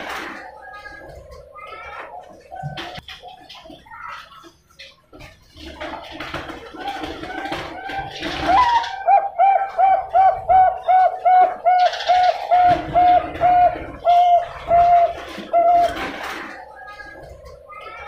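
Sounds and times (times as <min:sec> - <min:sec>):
dove cooing: 0:06.8 - 0:18.0.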